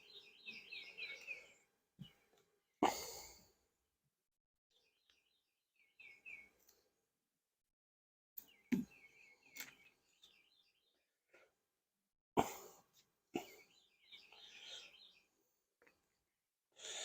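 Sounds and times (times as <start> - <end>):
birds chirping: 0.0 - 3.5, 4.7 - 7.0, 8.4 - 11.5, 13.3 - 17.0.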